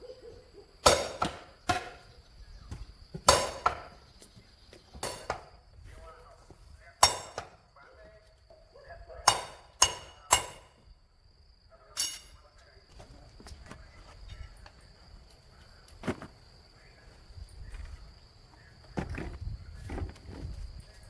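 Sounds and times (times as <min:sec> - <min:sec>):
sharp metallic clangs: 0:00.8 - 0:02.0, 0:03.2 - 0:04.0, 0:05.0 - 0:05.5, 0:07.0 - 0:07.6, 0:09.3 - 0:10.8, 0:12.0 - 0:12.4.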